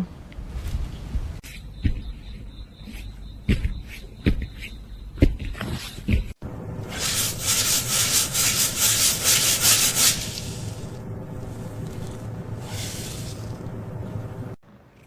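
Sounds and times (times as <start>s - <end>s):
rapid scratching strokes: 6.8s - 13.9s.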